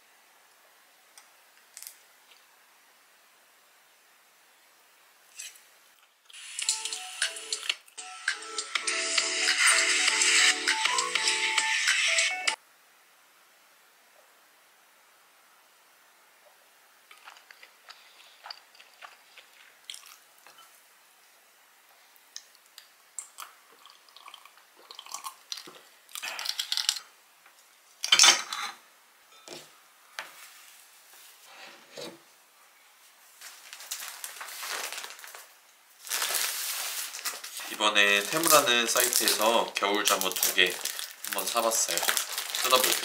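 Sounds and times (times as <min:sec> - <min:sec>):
person chewing food: 0:17.1 - 0:20.7, 0:22.4 - 0:27.0
plastic bag crinkling: 0:33.4 - 0:43.0.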